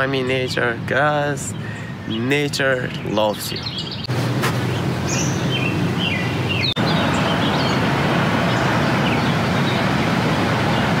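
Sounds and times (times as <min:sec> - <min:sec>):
birds chirping: 0:00.0 - 0:11.0
steady outdoor rushing noise: 0:03.9 - 0:11.0.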